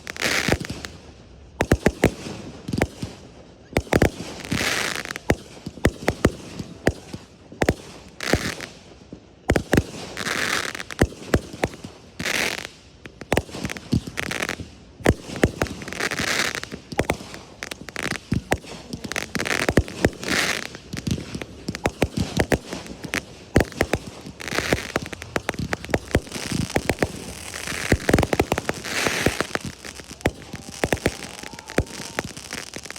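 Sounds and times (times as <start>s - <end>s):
fireworks crackling: 0.0s - 32.9s
fireworks bangs: 9.5s - 32.9s.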